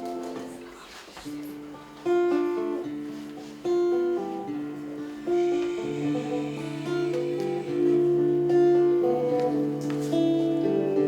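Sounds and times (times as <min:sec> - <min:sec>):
acoustic guitar chords: 0:01.4 - 0:11.0.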